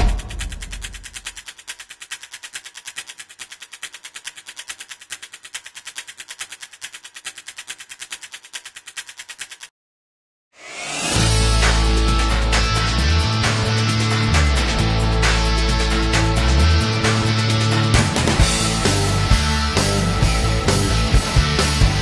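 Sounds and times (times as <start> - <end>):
rapid even clicking: 0.0 - 9.7.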